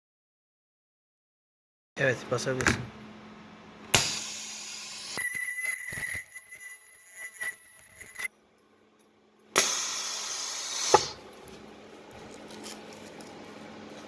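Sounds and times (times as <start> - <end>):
welding machine clicks: 5.2 - 8.4.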